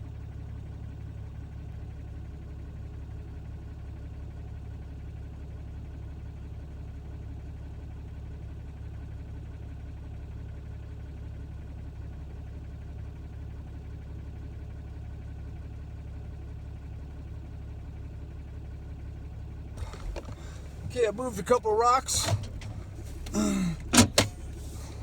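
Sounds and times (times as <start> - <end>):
truck engine idling: 19.8 - 25.0.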